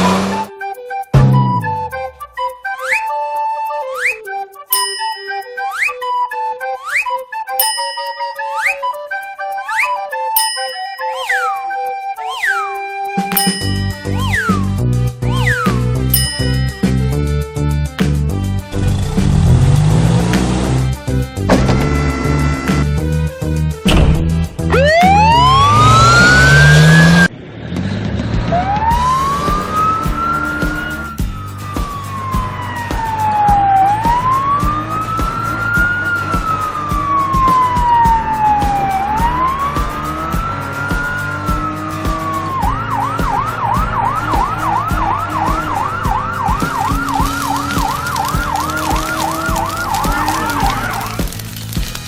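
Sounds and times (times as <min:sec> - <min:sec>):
cartoon siren wailing and yelping: 0:24.7 - 0:27.2, 0:31.8 - 0:41.7, 0:42.5 - 0:51.1.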